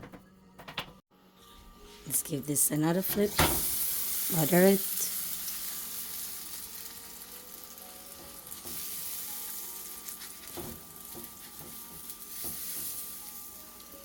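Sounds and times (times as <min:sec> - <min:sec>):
flatbread sizzling on a griddle: 0:03.4 - 0:14.0
utensil knocking on pan: 0:10.5 - 0:13.1.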